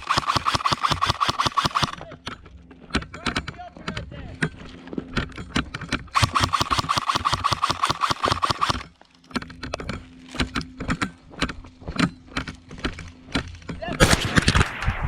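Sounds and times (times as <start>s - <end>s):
sharp clicks: 0.0s - 2.1s, 6.1s - 8.9s
small engine running: 0.0s - 3.4s, 4.3s - 13.6s.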